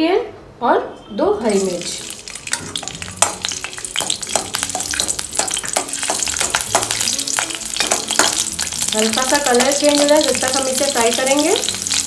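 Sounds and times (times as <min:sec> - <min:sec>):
garlic and chilli sizzling in oil: 0:01.4 - 0:12.0
spatula stirring in pan: 0:01.9 - 0:08.9.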